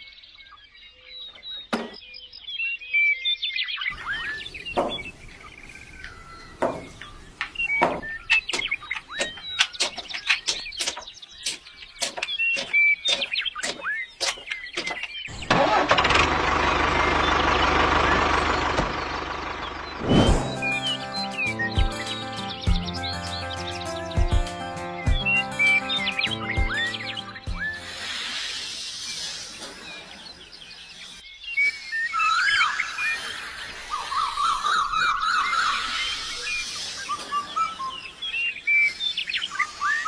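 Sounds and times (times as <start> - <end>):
small chirps: 3.9 - 15.3
tractor engine running: 3.9 - 22.9
sharp clicks and knocks: 4.3 - 5.4, 6.0 - 16.1.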